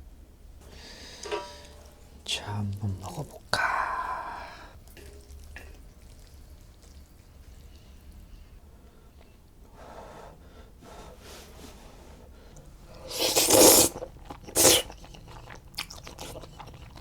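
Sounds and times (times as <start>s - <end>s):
person slurping noodles: 13.0s - 17.0s.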